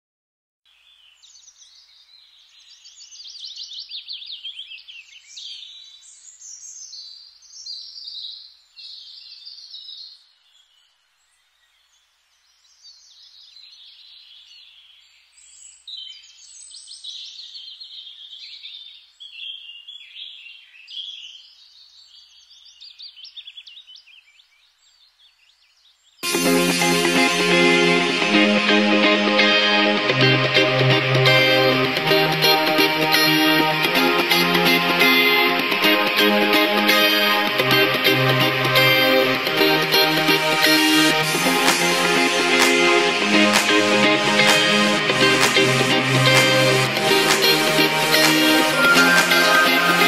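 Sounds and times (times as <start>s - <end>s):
songbirds singing: 0.7s - 26.2s.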